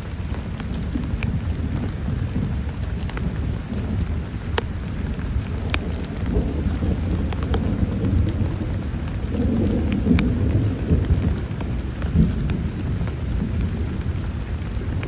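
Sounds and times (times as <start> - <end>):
heavy rain falling: 0.0 - 15.0
low rumble of thunder: 0.0 - 15.0
raindrops ticking on surface: 0.0 - 15.0.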